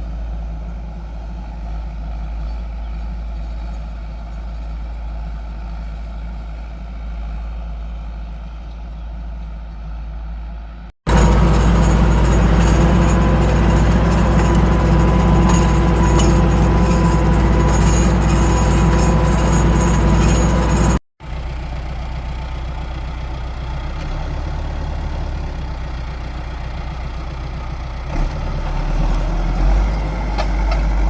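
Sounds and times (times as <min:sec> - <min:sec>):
tractor diesel engine running: 0:11.1 - 0:31.0.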